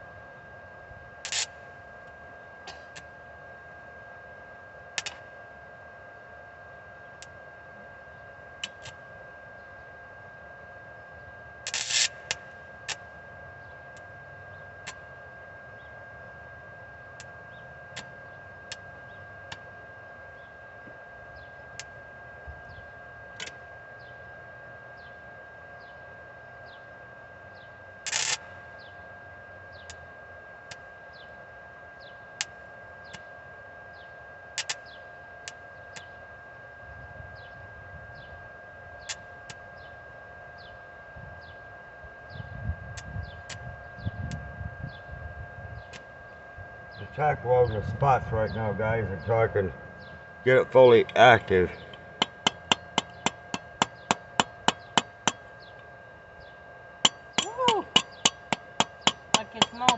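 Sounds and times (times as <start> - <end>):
steady hum: 0.0 - 59.9
crackling welding arc: 1.2 - 1.6, 11.6 - 12.3.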